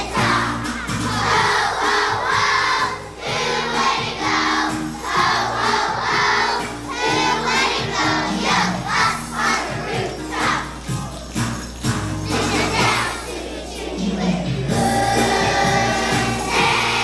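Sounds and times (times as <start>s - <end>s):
children's choir singing: 0.0s - 17.0s
instrumental accompaniment with beat: 0.0s - 17.0s.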